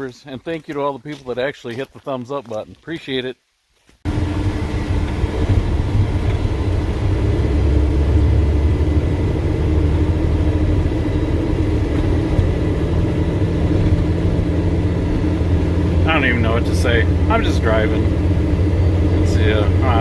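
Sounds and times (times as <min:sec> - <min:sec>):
truck diesel engine droning: 0:04.1 - 0:20.0.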